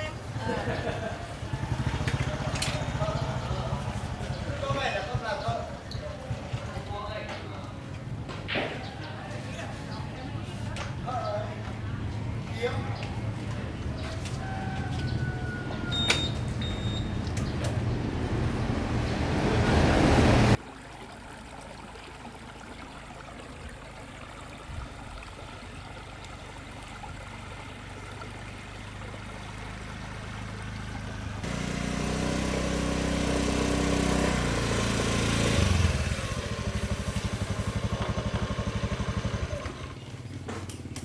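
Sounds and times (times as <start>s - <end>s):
motorbike engine running: 0.0s - 8.3s, 29.2s - 41.0s.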